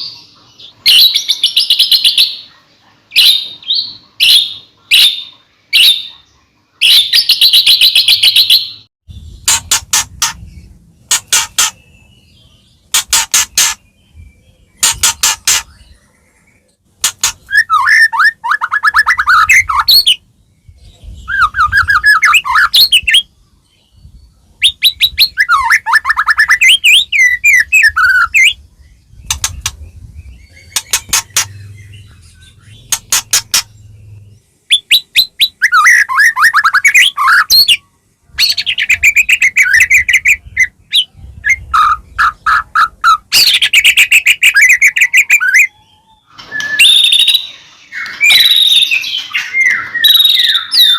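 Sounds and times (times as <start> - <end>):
bird singing loudly: 17.3 - 20.2, 30.4 - 50.9.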